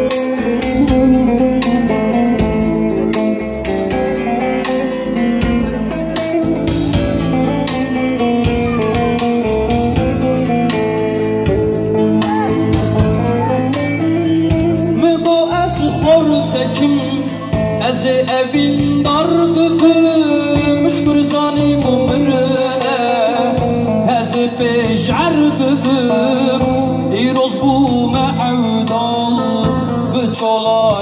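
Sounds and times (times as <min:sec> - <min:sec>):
steady beat: 0:00.0 - 0:23.0
plucked string instrument melody: 0:00.0 - 0:31.0.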